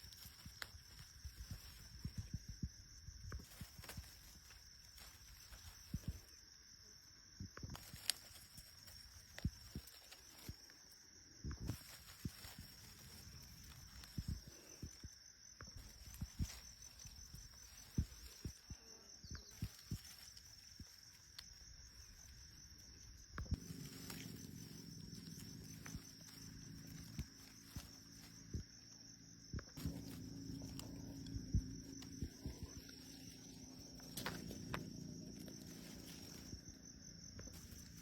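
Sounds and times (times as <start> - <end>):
footsteps and rustles on forest floor: 0.0 - 38.0
insect drone: 0.0 - 38.0
low hum: 22.9 - 38.0.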